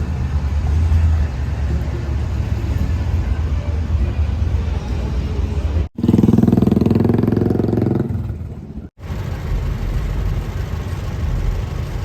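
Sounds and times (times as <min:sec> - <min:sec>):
street traffic rumble: 0:00.0 - 0:12.0
motorcycle engine running: 0:06.0 - 0:12.0.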